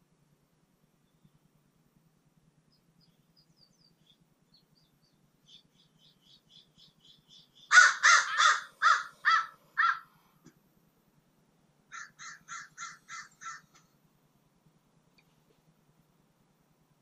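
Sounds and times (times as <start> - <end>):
faint high chirps: 1.0 - 1.5
bird harsh rasping calls: 5.5 - 10.1, 11.9 - 13.9.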